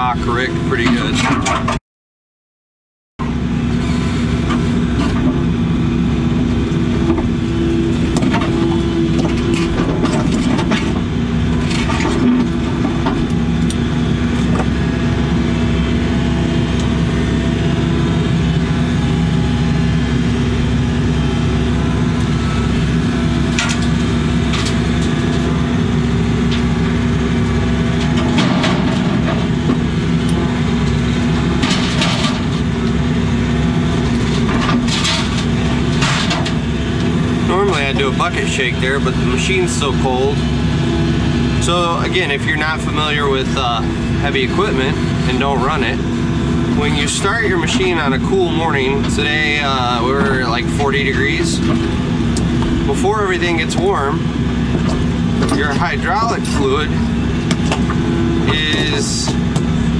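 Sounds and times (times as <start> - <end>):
excavator diesel engine running: 0.0 - 1.8, 3.2 - 59.9
machine clanks and knocks: 8.1 - 13.3, 28.0 - 29.8.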